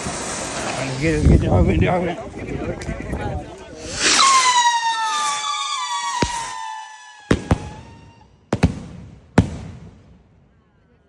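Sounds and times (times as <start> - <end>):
firework launch rush: 0.0 - 1.5, 3.8 - 10.2
firework whistle falling in pitch: 3.8 - 8.4
firework bangs: 3.9 - 10.6.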